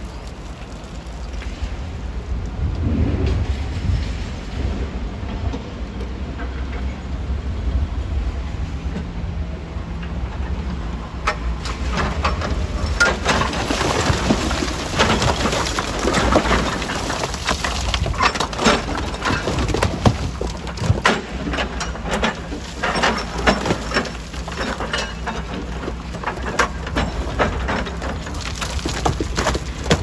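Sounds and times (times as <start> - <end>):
stone cracking and clattering: 12.2 - 30.0.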